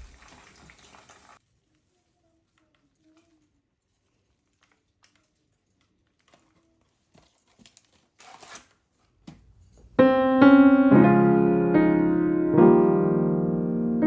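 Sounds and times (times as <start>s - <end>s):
rustle of handling: 0.0s - 9.8s
piano music: 10.0s - 14.0s.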